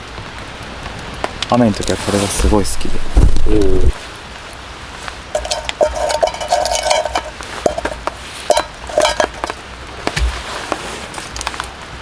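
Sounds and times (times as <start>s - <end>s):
metal utensil scraping cookware: 5.4s - 9.6s.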